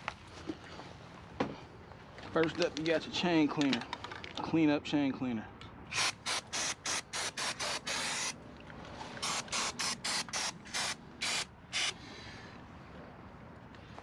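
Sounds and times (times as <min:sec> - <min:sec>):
aerosol spray hissing: 0:06.0 - 0:08.4, 0:09.2 - 0:12.0.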